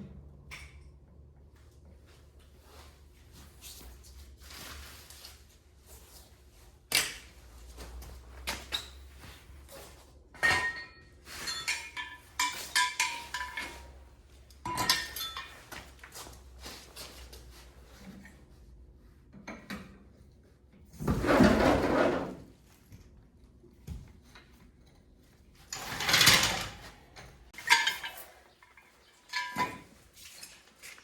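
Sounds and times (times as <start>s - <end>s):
metal tools clinking: 10.4s - 16.0s, 25.7s - 30.1s.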